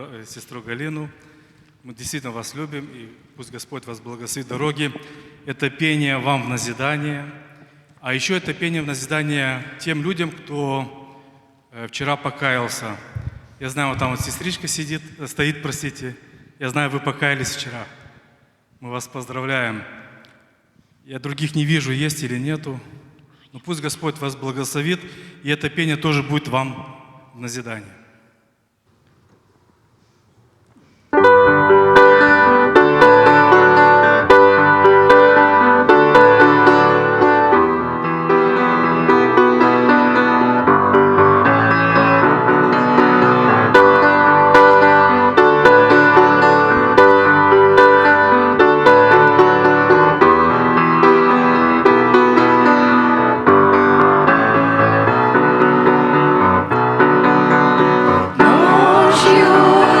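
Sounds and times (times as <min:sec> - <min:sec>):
keyboard playing piano sound: 0:31.2 - 1:00.0.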